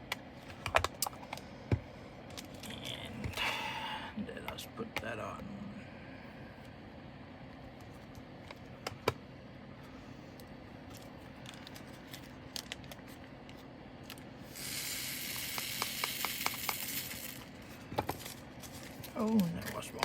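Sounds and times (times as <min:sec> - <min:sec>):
hissing rattle of poured drills: 0:14.5 - 0:17.6.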